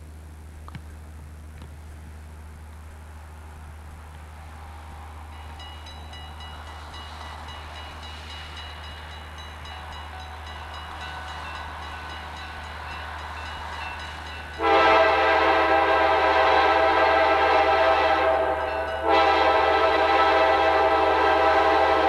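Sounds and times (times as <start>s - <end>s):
diesel locomotives rumbling: 0.0s - 22.0s
crossing bell ringing: 5.2s - 16.0s, 18.4s - 19.8s
locomotive air horn chord: 10.2s - 22.0s.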